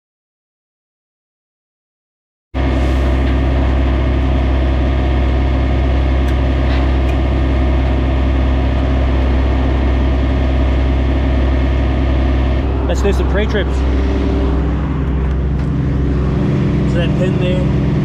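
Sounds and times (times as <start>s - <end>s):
diesel truck engine idling: 2.6s - 18.0s.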